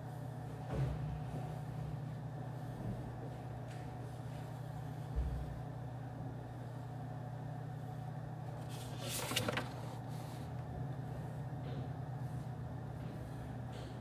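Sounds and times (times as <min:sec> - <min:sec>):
low room hum: 0:00.0 - 0:14.0
rustling noise: 0:08.6 - 0:10.4.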